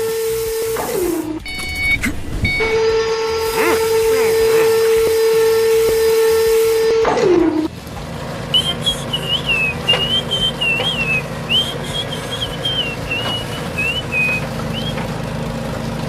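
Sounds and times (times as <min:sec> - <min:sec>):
steady low hum: 0:01.1 - 0:15.0
high whistled tune: 0:08.5 - 0:15.0.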